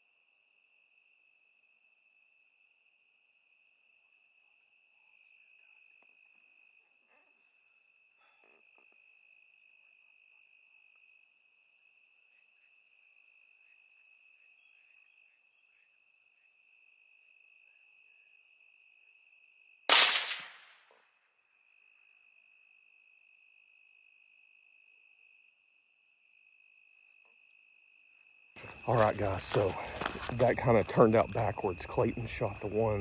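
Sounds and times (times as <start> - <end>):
crickets chirring: 0.0 - 20.6, 21.5 - 33.0
rifle shot: 19.9 - 20.8.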